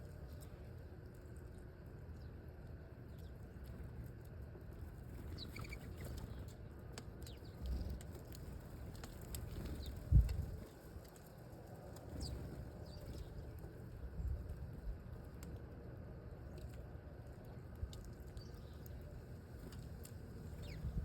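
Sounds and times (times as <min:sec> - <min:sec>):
small birds chirping: 0:00.2 - 0:03.9, 0:04.8 - 0:11.0, 0:11.9 - 0:14.6, 0:17.5 - 0:21.0.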